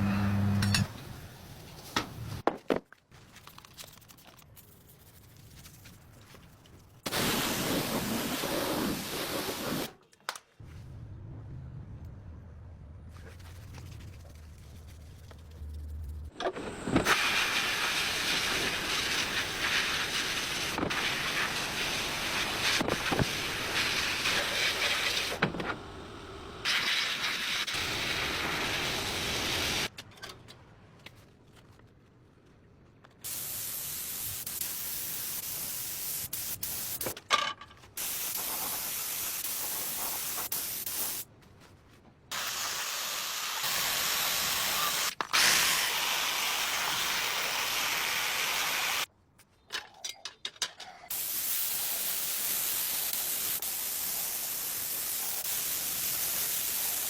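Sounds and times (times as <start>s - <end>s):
spraying hiss: 7.1s - 9.9s, 17.1s - 25.4s, 26.0s - 29.9s, 33.3s - 37.1s, 38.0s - 41.3s, 42.3s - 49.1s, 51.1s - 57.0s.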